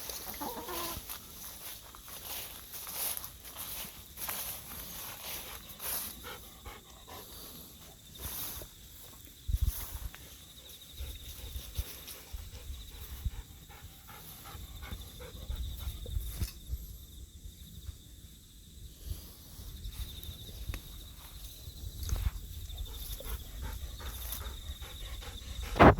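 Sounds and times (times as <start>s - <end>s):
dog panting: 5.3s - 8.0s, 10.8s - 16.1s, 22.7s - 25.9s.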